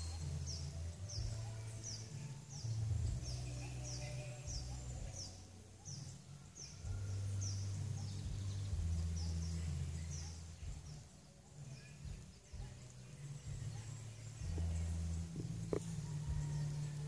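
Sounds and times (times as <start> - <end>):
bird chirping: 0.0 - 17.0
low rumble on microphone: 12.0 - 17.0.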